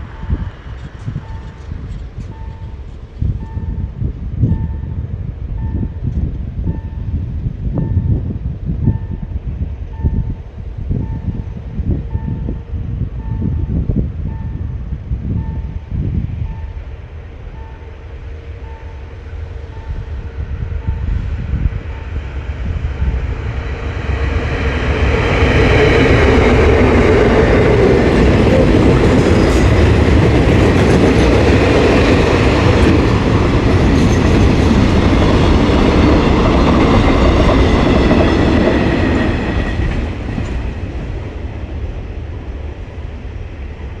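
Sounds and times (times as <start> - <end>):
freight train rolling past: 0.0 - 44.0.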